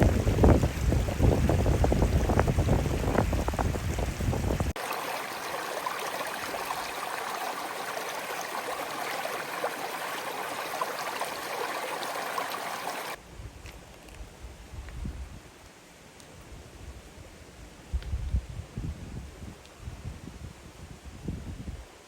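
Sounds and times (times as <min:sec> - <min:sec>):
stream water flowing: 0:00.0 - 0:13.2.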